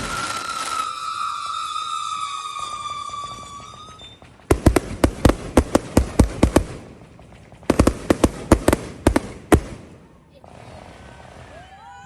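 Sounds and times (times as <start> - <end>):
firework whistle: 0.0 - 7.0
sharp firework bangs: 4.3 - 10.3.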